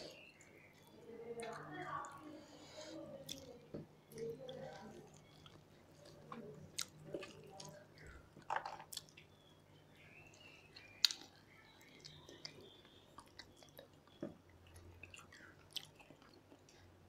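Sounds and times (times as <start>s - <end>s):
people chewing: 0.0s - 9.5s, 10.3s - 17.0s.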